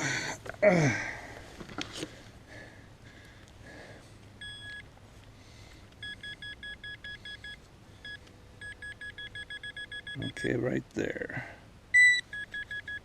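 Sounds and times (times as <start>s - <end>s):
metal detector beeping: 4.4s - 4.9s, 6.0s - 10.6s, 12.0s - 13.0s.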